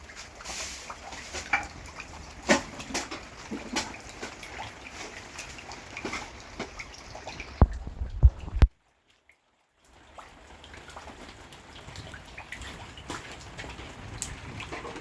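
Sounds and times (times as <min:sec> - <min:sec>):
rain dripping: 0:00.0 - 0:15.0
heavy low thumps: 0:07.6 - 0:08.7.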